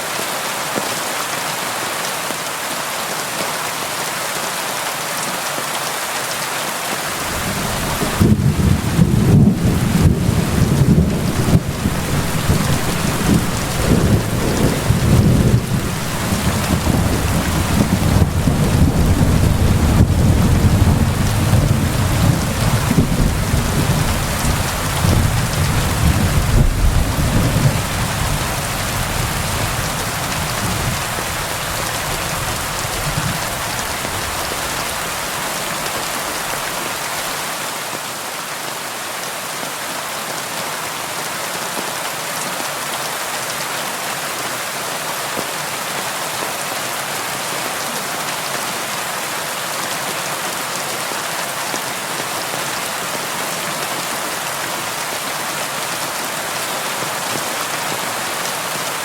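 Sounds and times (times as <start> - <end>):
rain on window glass: 7.1 - 34.7
low thunder rumble: 7.2 - 35.0.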